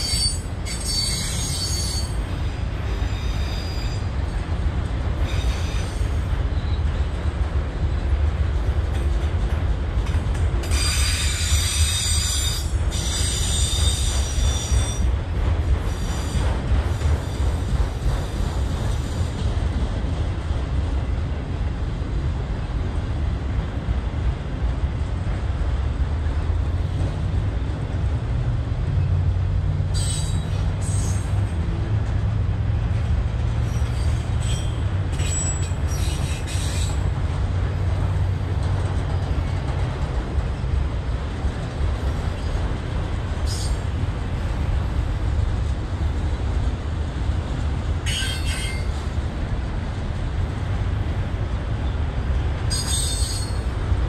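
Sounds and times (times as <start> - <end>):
high wheel squeals: 0.0 - 4.1, 10.7 - 15.1, 29.9 - 31.4, 33.6 - 37.0, 48.1 - 48.9, 52.7 - 53.6
train wheels rumbling on rails: 0.0 - 54.0.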